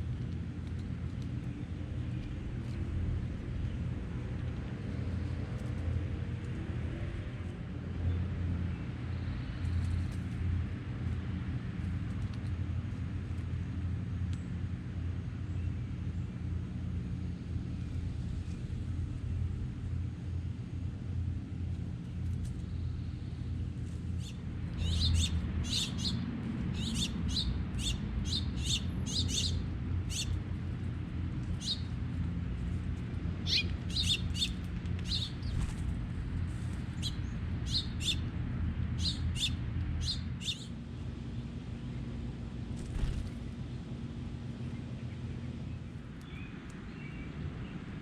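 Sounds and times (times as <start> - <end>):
songbird chirping: 24.2 - 30.3, 33.4 - 35.7, 37.0 - 38.3.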